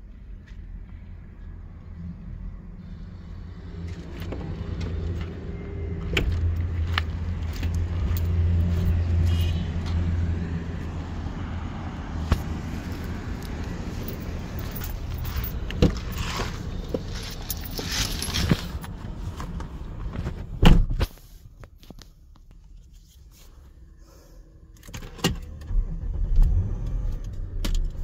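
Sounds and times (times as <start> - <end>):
car engine idling: 2.8 - 19.2.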